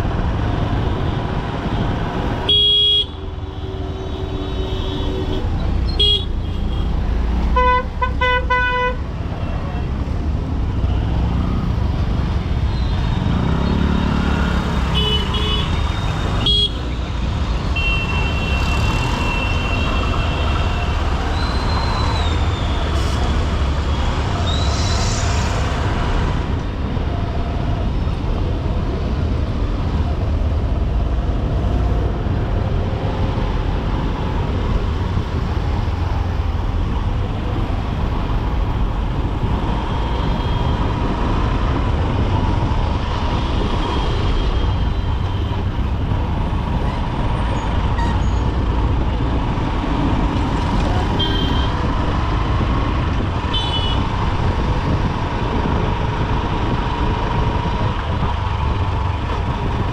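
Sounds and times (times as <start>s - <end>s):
vehicle horns honking: 2.5s - 3.2s, 5.9s - 6.9s, 7.6s - 9.0s, 51.1s - 51.8s, 53.5s - 54.0s.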